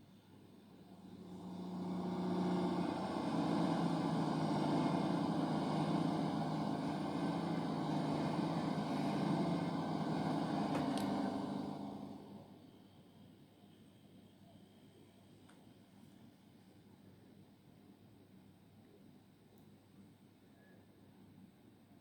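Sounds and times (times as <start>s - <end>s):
diesel train passing: 0.8s - 12.6s.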